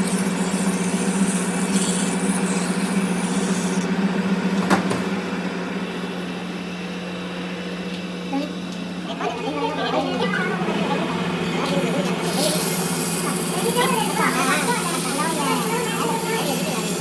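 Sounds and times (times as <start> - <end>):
machine humming: 0.1 - 17.0.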